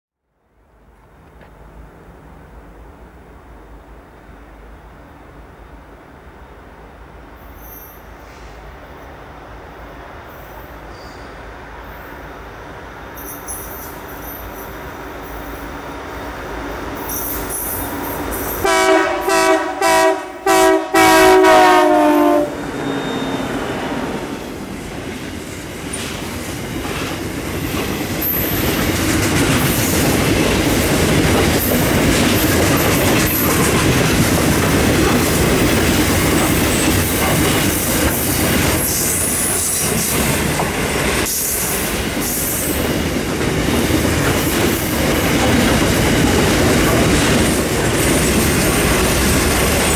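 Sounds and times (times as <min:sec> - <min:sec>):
freight train rumbling past: 0:00.6 - 0:49.9
locomotive horn blasts: 0:18.6 - 0:23.6.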